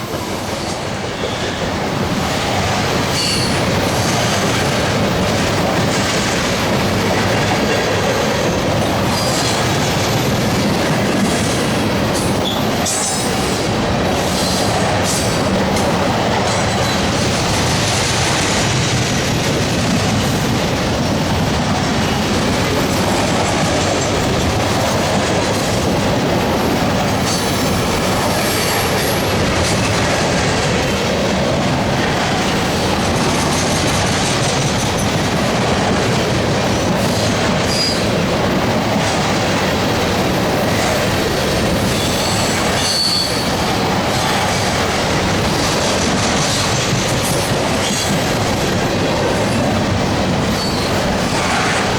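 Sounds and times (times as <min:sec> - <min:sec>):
freight train rumbling past: 0:00.0 - 0:51.9
high wheel squeals: 0:41.9 - 0:43.8, 0:50.5 - 0:51.0.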